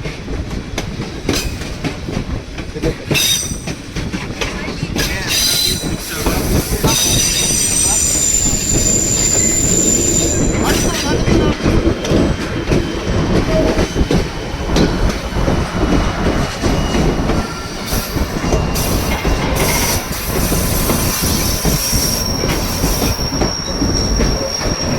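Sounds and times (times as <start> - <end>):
train rumbling on rails: 0.0 - 24.9
high-pitched wheel squeal: 6.9 - 10.8, 19.6 - 24.9.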